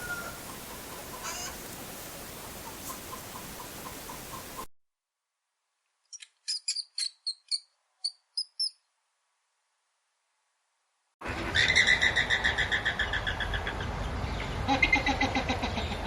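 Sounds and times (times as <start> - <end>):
bird chirping: 6.1 - 9.0.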